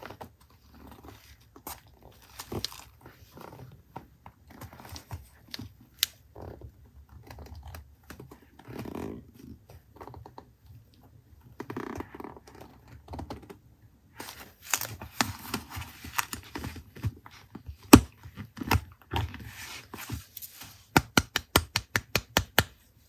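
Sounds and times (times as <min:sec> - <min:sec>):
paper rustling: 0:14.2 - 0:17.4, 0:19.3 - 0:20.9
sharp taps and clicks: 0:20.9 - 0:22.8.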